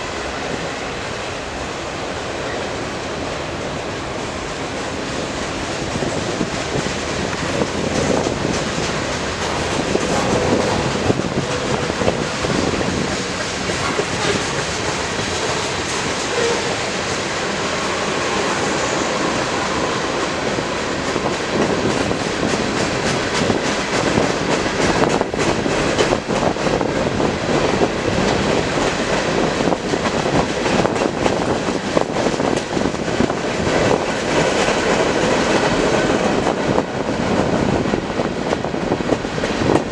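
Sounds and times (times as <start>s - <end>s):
freight train wheels on rail: 0.0s - 39.9s.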